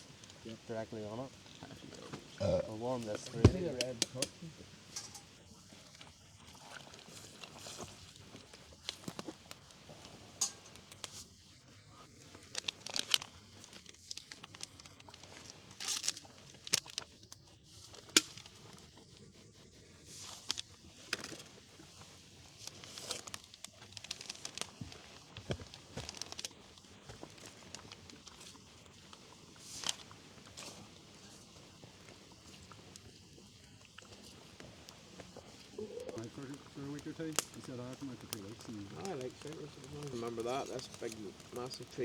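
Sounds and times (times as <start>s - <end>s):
wrapping crinkling and tearing: 12.1s - 19.2s, 20.2s - 42.0s.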